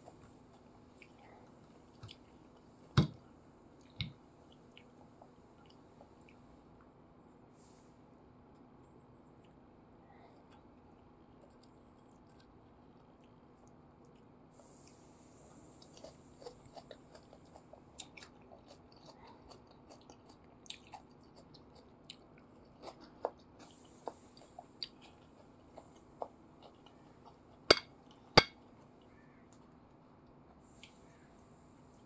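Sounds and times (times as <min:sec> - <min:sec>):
wet chewing clicks and smacks: 0:15.8 - 0:28.2.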